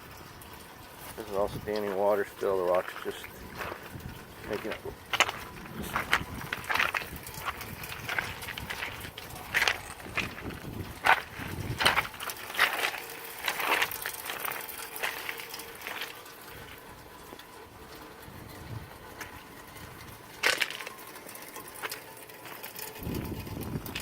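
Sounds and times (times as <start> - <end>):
footsteps crunching on rocks: 2.8 - 16.8, 20.4 - 22.7.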